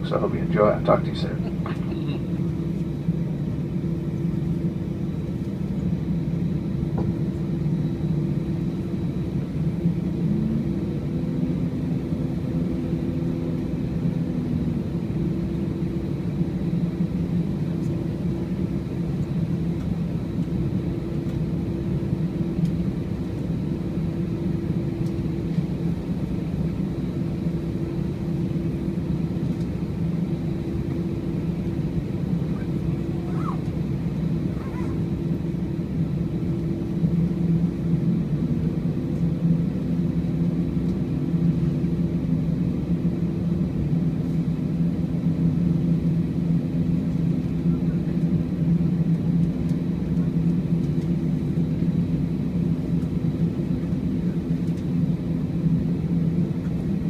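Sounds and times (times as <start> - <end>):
aircraft cabin hum: 0.0 - 57.0.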